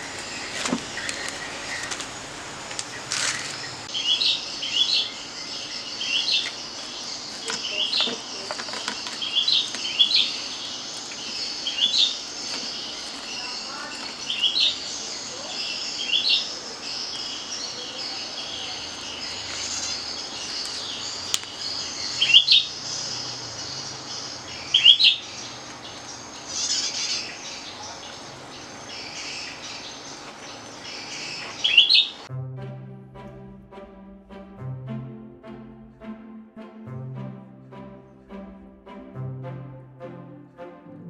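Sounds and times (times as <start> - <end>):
background birdsong chorus: 0.0 - 32.3
music: 32.3 - 41.0.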